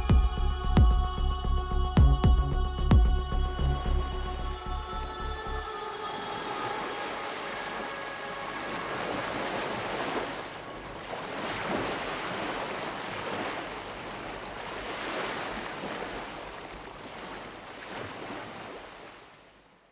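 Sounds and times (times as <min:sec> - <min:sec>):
sea waves washing: 0:06.0 - 0:19.3.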